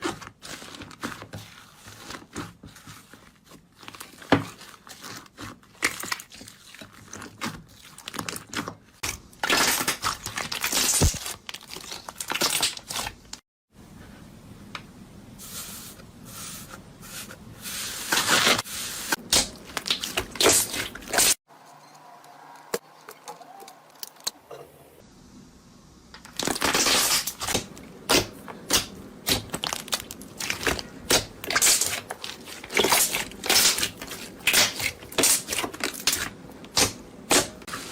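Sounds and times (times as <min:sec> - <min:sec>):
slime crackling and popping: 0:26.3 - 0:37.6.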